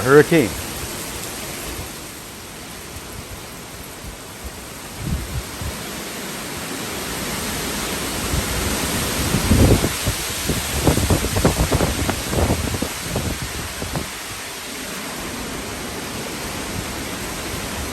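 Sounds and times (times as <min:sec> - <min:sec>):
heavy rain: 0:00.0 - 0:17.9
wind gusts buffeting microphone: 0:04.0 - 0:05.8, 0:07.4 - 0:14.4.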